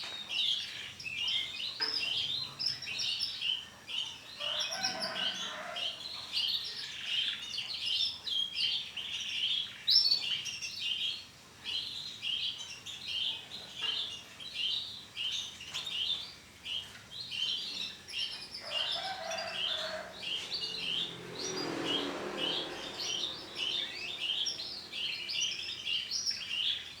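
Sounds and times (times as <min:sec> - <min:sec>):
canaries chirping and trilling: 0:00.4 - 0:10.4, 0:11.7 - 0:27.0.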